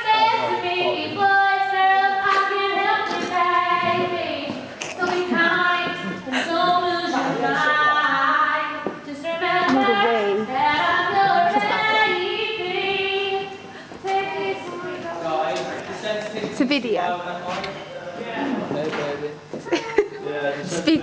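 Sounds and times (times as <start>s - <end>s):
woman singing held notes: 9.2s - 12.3s.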